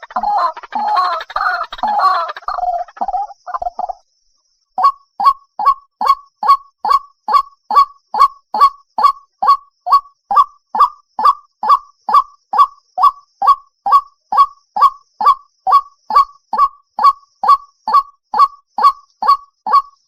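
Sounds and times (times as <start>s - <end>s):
waterhen honking call: 0.0s - 3.2s, 13.4s - 20.0s.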